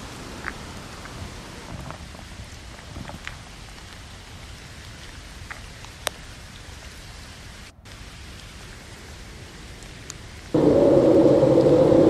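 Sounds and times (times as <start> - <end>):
rain on a tent: 0.0 - 12.0
raindrop hits: 9.8 - 12.0.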